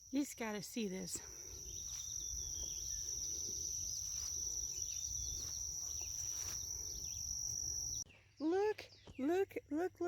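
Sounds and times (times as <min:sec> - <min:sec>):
insects droning: 0:00.0 - 0:08.0
faint bird chirps: 0:00.0 - 0:09.5.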